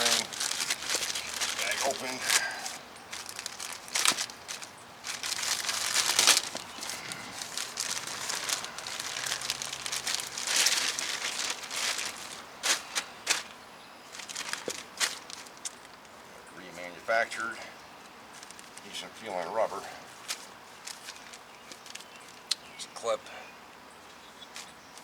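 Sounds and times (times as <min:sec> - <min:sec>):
packaging bag crinkling: 0:00.0 - 0:15.9.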